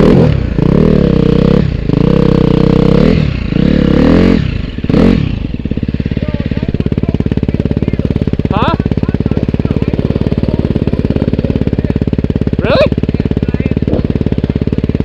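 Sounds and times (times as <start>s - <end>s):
motorcycle engine revving and idling: 0.0s - 15.0s.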